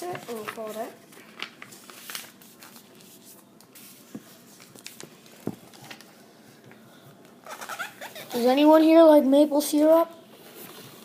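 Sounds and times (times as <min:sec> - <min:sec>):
paper folding and rustling: 0:00.0 - 0:06.1.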